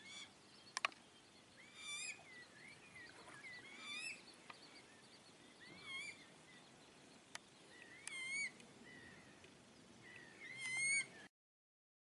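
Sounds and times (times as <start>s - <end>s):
whistled bird calls: 0.0s - 6.8s, 7.7s - 9.3s, 10.0s - 11.3s.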